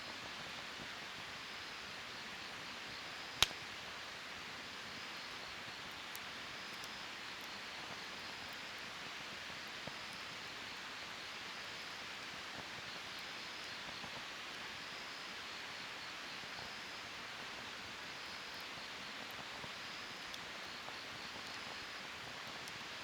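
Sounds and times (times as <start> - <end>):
wood fire burning: 3.3 - 3.8, 5.2 - 9.4, 17.8 - 23.0.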